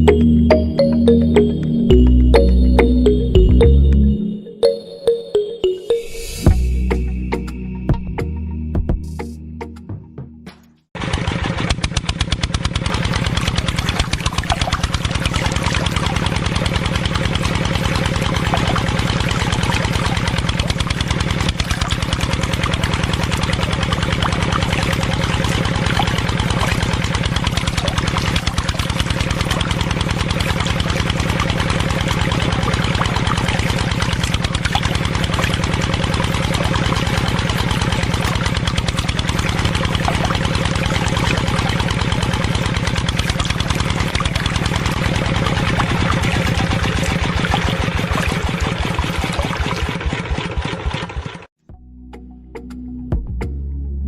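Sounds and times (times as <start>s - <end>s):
small engine idling: 11.0s - 51.5s.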